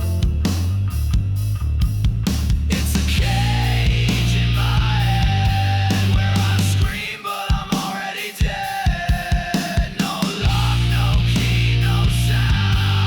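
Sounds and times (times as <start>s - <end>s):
guitar: 0.0s - 7.2s, 10.3s - 13.0s
distorted rock music: 0.0s - 13.0s.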